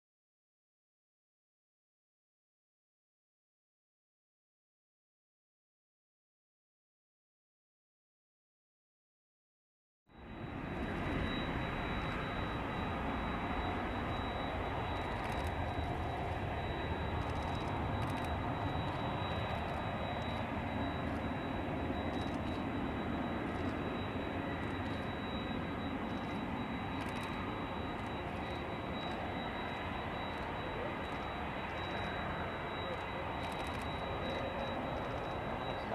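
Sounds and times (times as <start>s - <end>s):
jet engine rumble: 10.2s - 35.9s
thin high tone: 10.2s - 35.9s.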